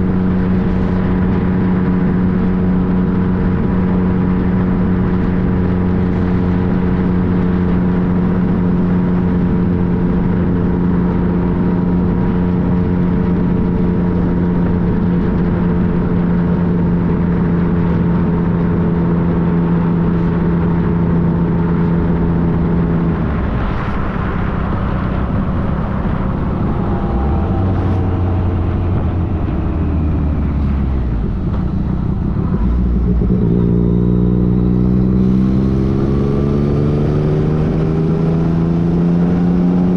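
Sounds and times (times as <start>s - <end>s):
motorcycle engine running: 0.0s - 39.9s
wind rushing: 22.4s - 33.4s.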